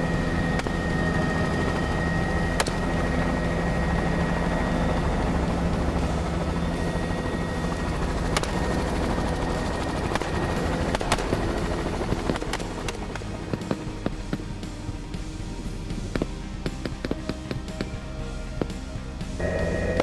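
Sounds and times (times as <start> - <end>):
sharp cracks: 0.0 - 4.4, 7.6 - 14.0
helicopter drone: 0.0 - 20.0.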